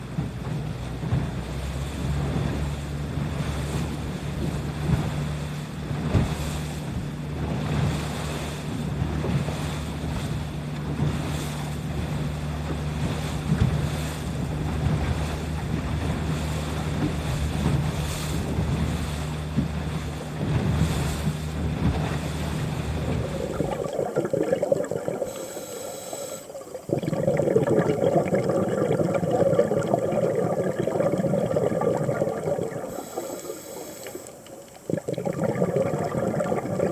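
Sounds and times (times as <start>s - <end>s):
boat motor running: 0.0s - 36.9s
waves washing: 7.6s - 36.9s
rushing water: 22.2s - 36.9s.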